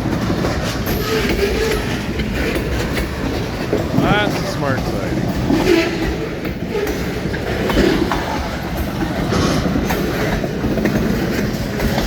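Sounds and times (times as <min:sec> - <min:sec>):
train cars rumbling past: 0:00.0 - 0:12.0
wheel clatter on track: 0:00.0 - 0:12.0.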